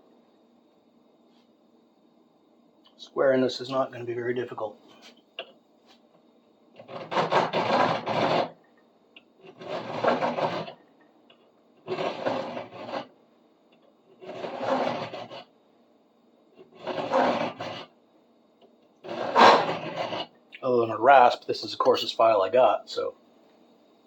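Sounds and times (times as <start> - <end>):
file scraping metal: 6.8 - 8.6, 9.4 - 10.8, 11.9 - 13.1, 14.2 - 15.5, 16.6 - 17.9, 19.0 - 20.3.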